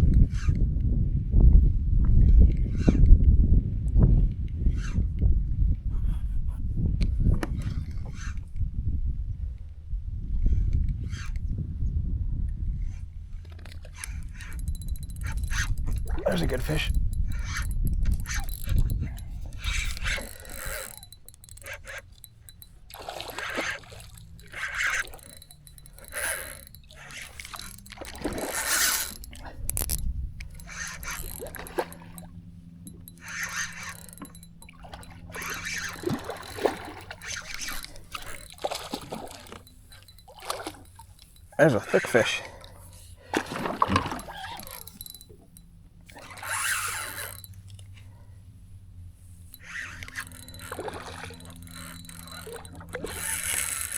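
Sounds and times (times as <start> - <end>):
fish splashing water: 14.0 - 41.5, 43.2 - 45.5, 49.6 - 53.9.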